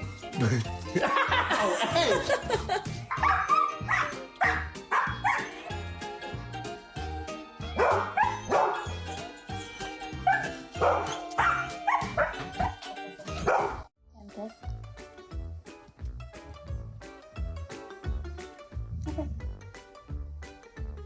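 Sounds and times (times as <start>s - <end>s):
background music with a beat: 0.0s - 13.8s, 14.5s - 21.0s
dog barking: 3.1s - 5.6s, 7.8s - 9.0s, 10.3s - 12.8s, 13.4s - 13.9s.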